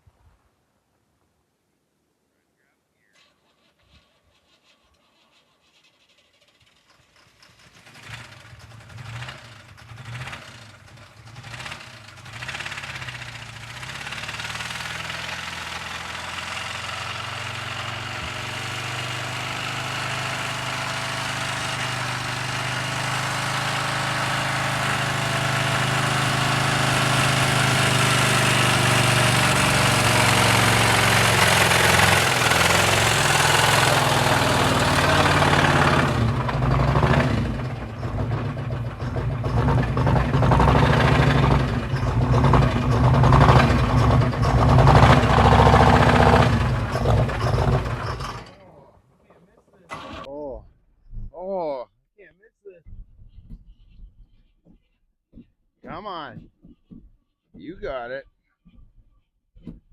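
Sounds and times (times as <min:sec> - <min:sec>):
car engine sputtering and running: 0:05.2 - 0:50.3.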